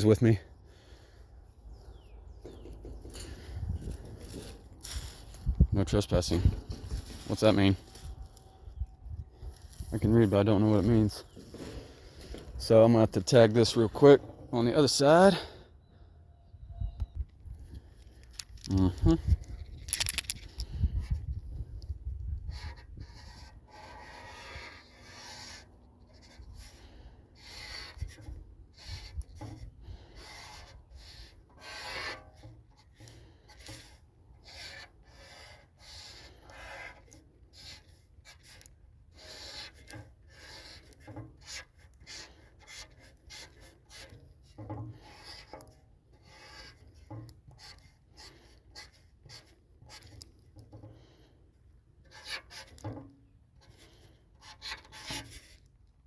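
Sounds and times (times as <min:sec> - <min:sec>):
faint low wind rumble: 0:01.7 - 0:10.2, 0:16.4 - 0:23.4
marker scraping across a surface: 0:22.3 - 0:51.4, 0:52.0 - 0:55.7.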